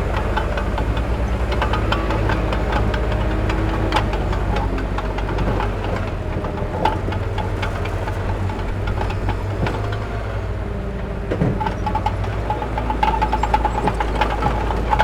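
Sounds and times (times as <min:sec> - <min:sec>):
heavy diesel machine running: 0:00.0 - 0:15.0
metallic clanks and knocks: 0:11.0 - 0:15.0.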